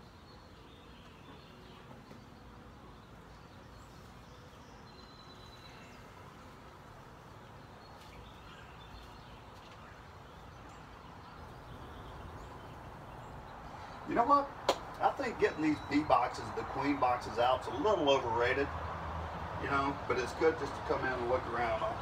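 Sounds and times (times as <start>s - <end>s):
faint bird chirps: 0.0s - 6.3s
honeybees humming: 0.0s - 22.0s.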